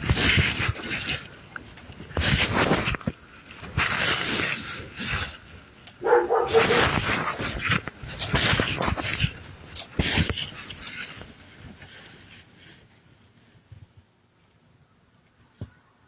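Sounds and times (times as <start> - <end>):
dog whining: 6.0 - 7.0
dog huffing: 6.0 - 7.4.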